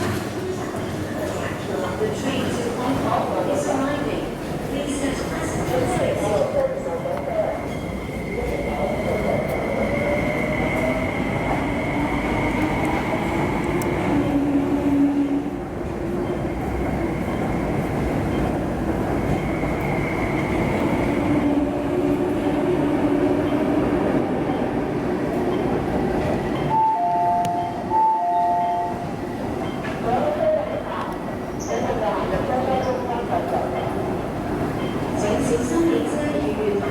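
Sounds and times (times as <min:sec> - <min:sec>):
two-note beep: 0:26.7 - 0:29.0.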